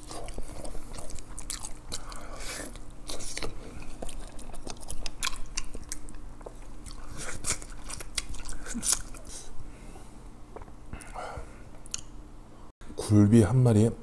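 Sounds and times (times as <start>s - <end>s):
chewing and biting food: 0.0s - 9.4s
mouth clicks and smacks: 11.8s - 12.1s.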